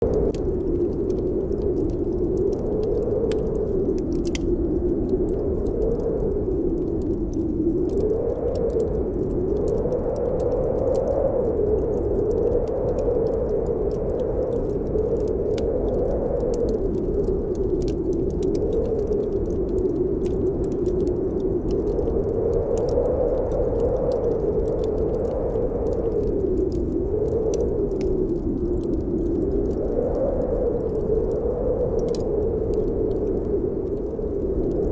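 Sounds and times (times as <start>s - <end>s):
blizzard wind howling: 0.0s - 34.9s
faint ticks: 0.1s - 34.9s.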